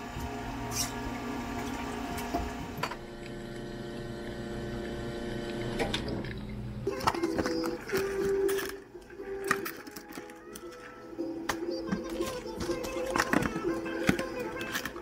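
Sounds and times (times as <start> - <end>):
espresso machine pump running: 0.0 - 6.9.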